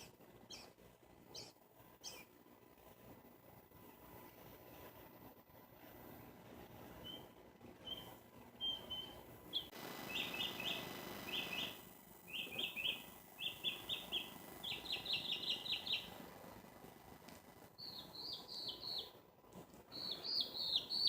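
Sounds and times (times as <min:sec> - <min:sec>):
small birds chirping: 0:00.0 - 0:02.4, 0:06.9 - 0:16.2, 0:17.7 - 0:19.2, 0:19.8 - 0:21.0.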